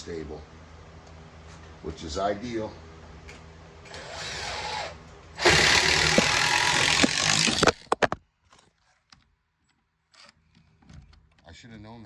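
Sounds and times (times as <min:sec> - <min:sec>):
power drill driving screw into wood: 0:03.9 - 0:08.0.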